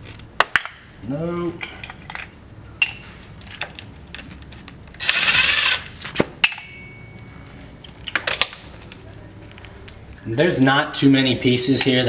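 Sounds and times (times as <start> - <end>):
metal tools clinking: 1.1 - 9.6.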